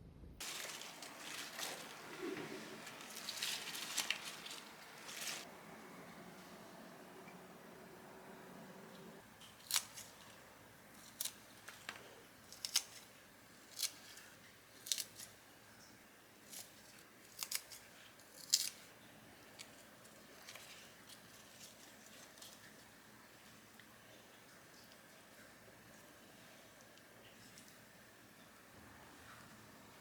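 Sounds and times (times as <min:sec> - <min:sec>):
scissors snipping: 0:09.4 - 0:10.4.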